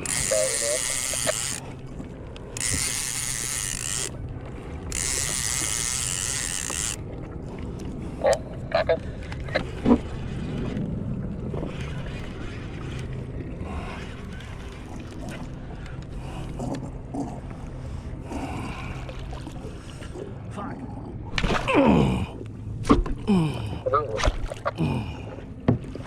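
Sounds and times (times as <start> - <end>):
fishing reel ratcheting: 0.0 - 1.7, 2.4 - 4.2, 4.9 - 7.0.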